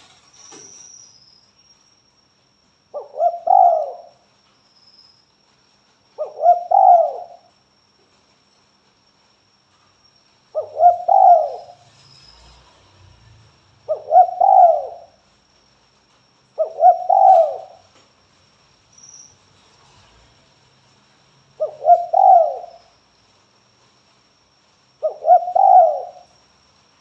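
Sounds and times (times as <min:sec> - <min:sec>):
dove cooing: 0:03.0 - 0:04.2, 0:06.2 - 0:07.5, 0:10.6 - 0:11.8, 0:13.9 - 0:15.2, 0:16.6 - 0:17.9, 0:21.6 - 0:22.8, 0:25.0 - 0:26.3.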